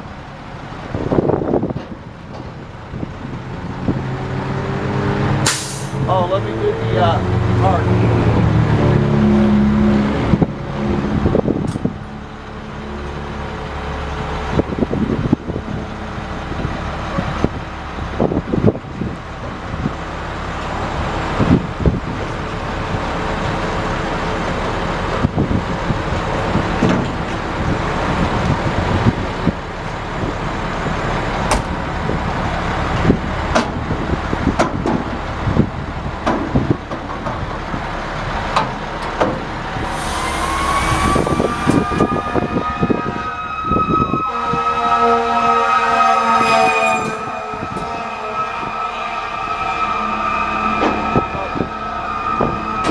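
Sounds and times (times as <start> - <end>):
diesel truck engine running: 5.5 - 45.2.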